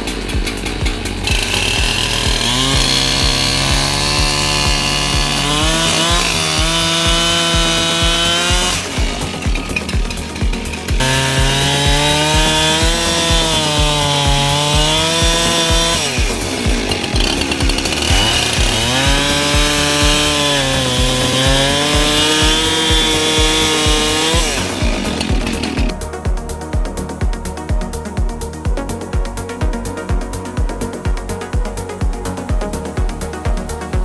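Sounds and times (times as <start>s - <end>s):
chainsaw cutting logs: 0.0s - 26.0s
electronic music with beat: 0.0s - 34.0s.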